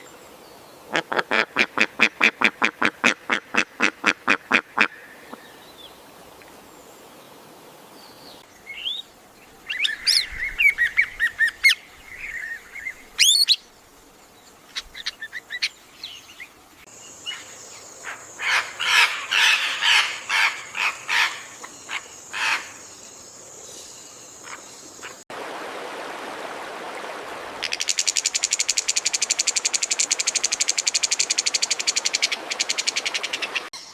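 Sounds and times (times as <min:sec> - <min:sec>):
duck calls: 0:00.9 - 0:05.0
running water hissing: 0:04.9 - 0:33.7.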